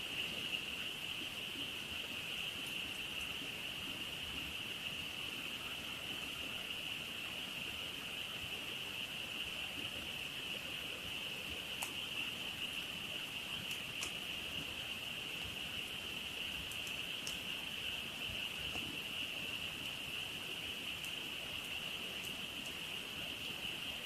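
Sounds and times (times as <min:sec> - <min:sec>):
campfire crackles: 0:00.0 - 0:24.0.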